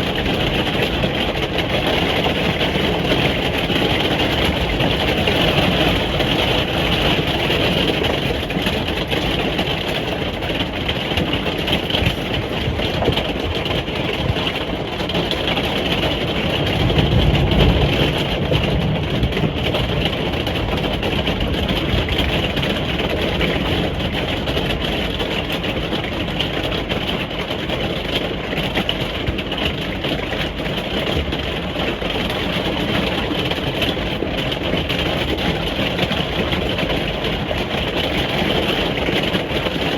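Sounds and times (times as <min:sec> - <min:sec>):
rain on a caravan roof: 0:00.0 - 0:39.9
low rumble: 0:16.6 - 0:22.4.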